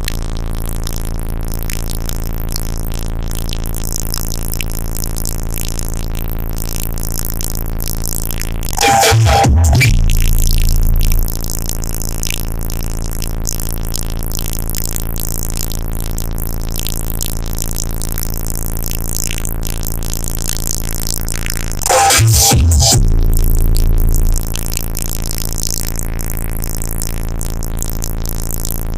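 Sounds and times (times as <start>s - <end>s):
rap beat with heavy synth bass: 8.7s - 11.4s, 21.5s - 24.5s.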